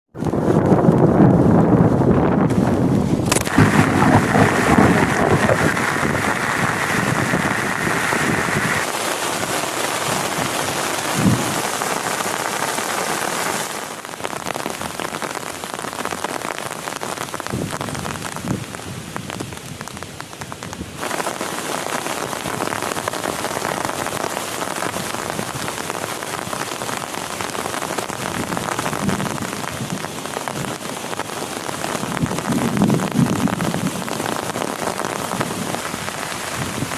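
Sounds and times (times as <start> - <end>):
heavy rain: 0.2 - 36.9
low thunder rumbling: 0.4 - 8.9.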